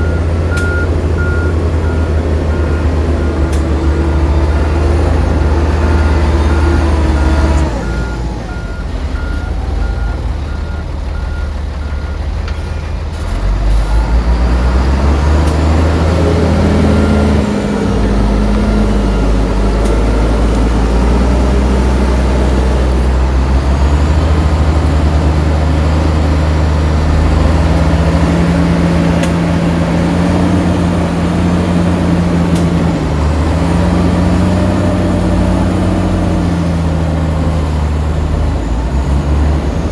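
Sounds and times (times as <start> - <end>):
reversing alarm beeping: 0.0 - 12.3
diesel machinery engines revving: 0.0 - 39.9.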